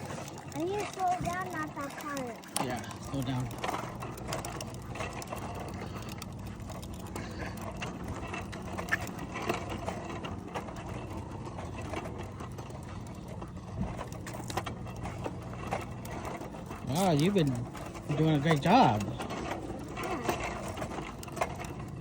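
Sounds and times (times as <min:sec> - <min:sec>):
rolling hum of riding on pavement: 0:00.0 - 0:22.0.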